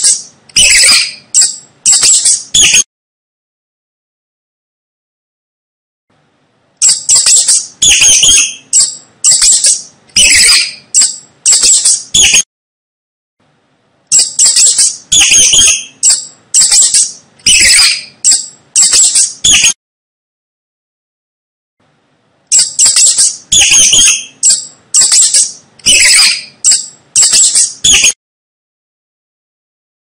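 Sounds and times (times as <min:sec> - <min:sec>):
mouse squeaking: 0:00.0 - 0:02.8, 0:06.8 - 0:12.4, 0:14.1 - 0:19.8, 0:22.5 - 0:28.2.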